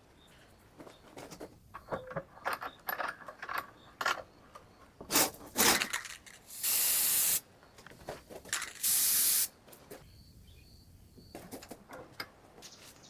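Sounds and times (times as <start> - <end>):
pressurised spray hissing: 6.5 - 7.4, 8.8 - 9.5.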